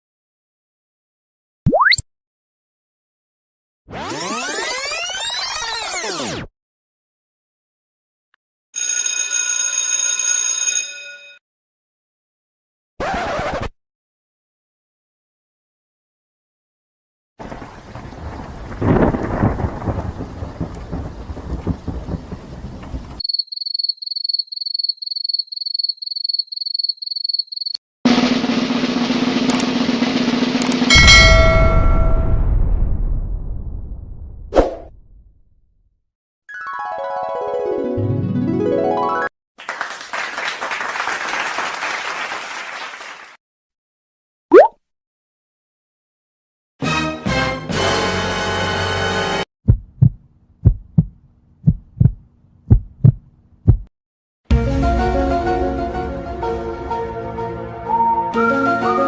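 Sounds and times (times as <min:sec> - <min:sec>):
thunder-like rumble: 0:17.4 - 0:23.2, 0:31.4 - 0:34.5
crowd applause: 0:39.6 - 0:43.4.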